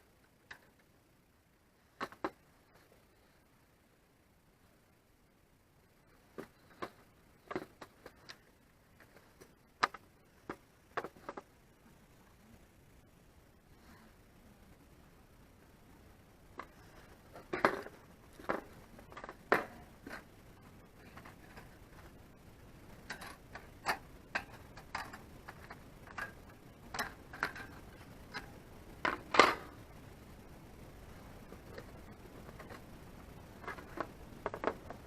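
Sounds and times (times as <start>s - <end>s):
hard objects knocking and clicking: 33.6s - 35.0s.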